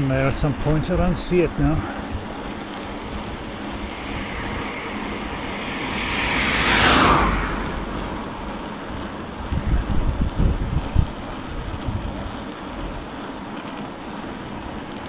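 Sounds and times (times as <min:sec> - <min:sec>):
wind buffeting microphone: 0:00.0 - 0:13.2
vehicle passing at speed: 0:02.1 - 0:09.6.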